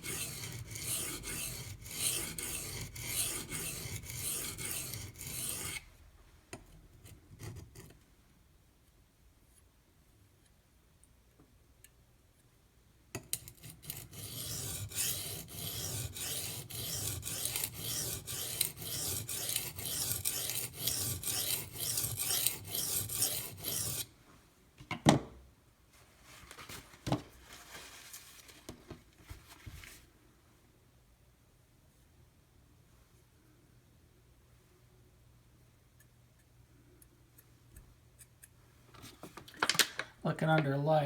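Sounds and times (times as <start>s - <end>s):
knife blade rasping on stone: 0.0s - 5.8s, 13.4s - 24.1s.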